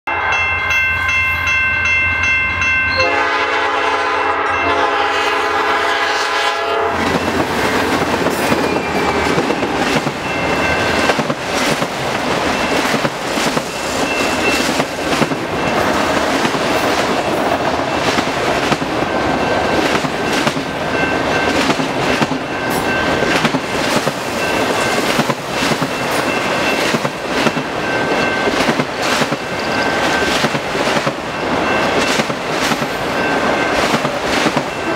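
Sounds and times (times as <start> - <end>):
locomotive horn: 2.9 - 7.2
wheels clacking over rail joints: 7.0 - 34.9.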